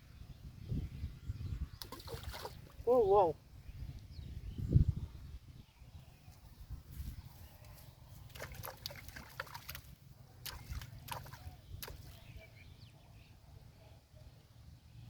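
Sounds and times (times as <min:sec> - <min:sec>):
water splashing: 0:01.8 - 0:02.9, 0:08.3 - 0:12.4.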